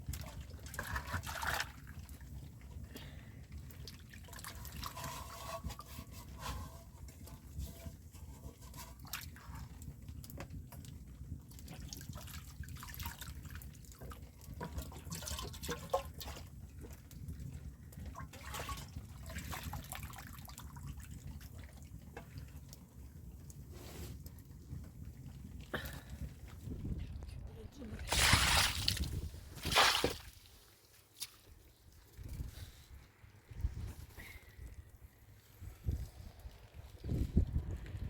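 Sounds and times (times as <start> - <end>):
water dripping and splashing: 0.0 - 7.4, 8.2 - 26.5, 28.1 - 32.5
steady low rumble: 26.2 - 29.5.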